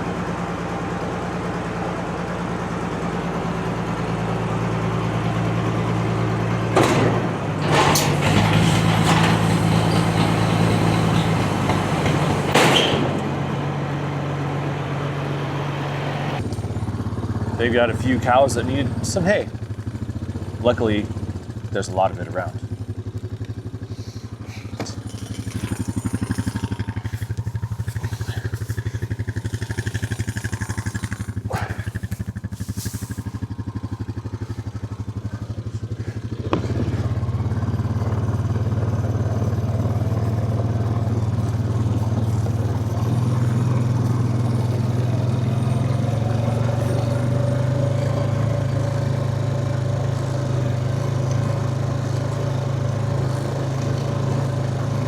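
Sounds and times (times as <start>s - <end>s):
vehicle engine running low: 0.0s - 55.0s
short rattles: 24.6s - 35.4s.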